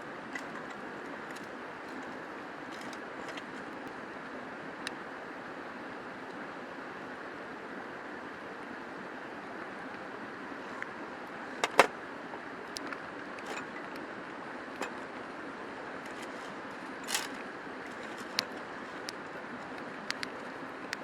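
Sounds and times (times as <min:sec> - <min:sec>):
clicks and knocks: 0:00.3 - 0:03.7, 0:11.6 - 0:11.9, 0:13.4 - 0:14.0, 0:14.8 - 0:15.1.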